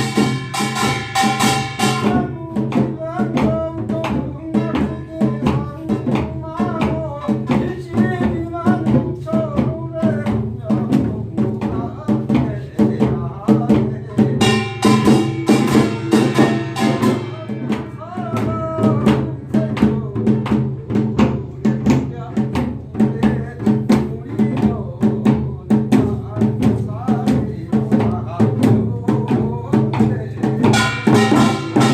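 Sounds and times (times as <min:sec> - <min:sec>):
folk drums beating: 0:00.0 - 0:31.9.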